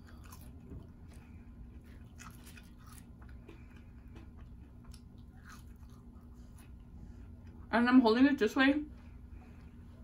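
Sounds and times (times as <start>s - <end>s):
chewing fries: 0.0s - 7.6s
low steady hum: 0.0s - 10.0s.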